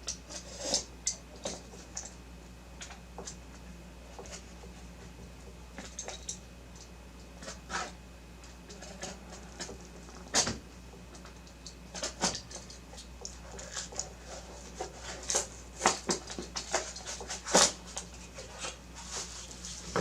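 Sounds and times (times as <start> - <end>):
plastic and cardboard packaging crinkling: 13.5 - 20.0.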